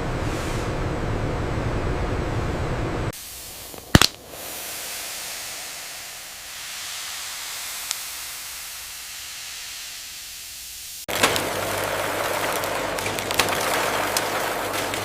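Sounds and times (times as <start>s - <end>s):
steady hiss: 3.2s - 11.1s.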